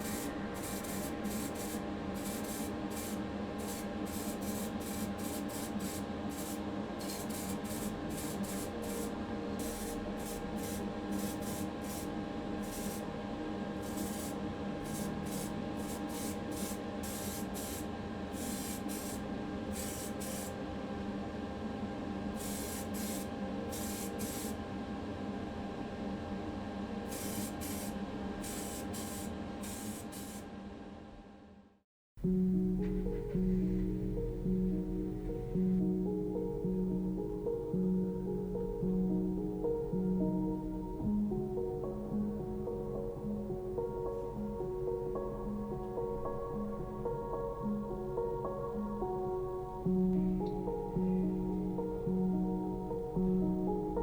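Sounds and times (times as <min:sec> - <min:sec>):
paint spraying bursts: 0:00.0 - 0:12.1.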